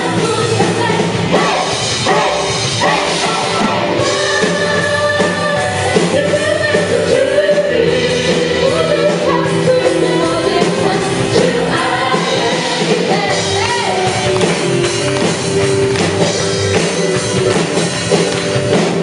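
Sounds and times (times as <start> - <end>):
voices singing: 0.0 - 14.4
worship band playing: 0.0 - 19.0.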